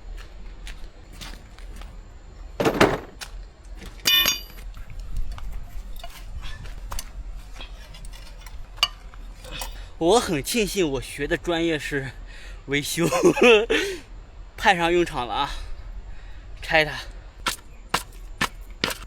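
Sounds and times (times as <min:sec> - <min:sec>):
tools scraping clatter: 0:02.6 - 0:04.6, 0:05.8 - 0:09.8
metal hand tools clinking: 0:04.0 - 0:04.6
sharp ringing metal clink: 0:04.0 - 0:04.6.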